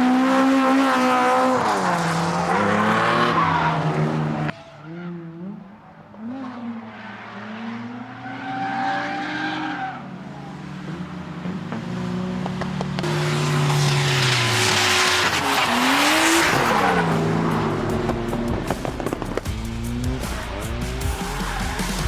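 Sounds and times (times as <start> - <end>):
car engine revving: 9.1 - 22.0.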